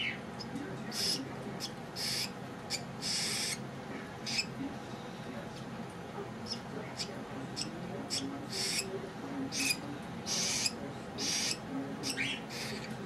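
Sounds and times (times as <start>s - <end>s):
baby birds begging chirps: 0.0s - 3.6s, 4.2s - 4.6s, 6.4s - 8.9s, 9.5s - 13.0s.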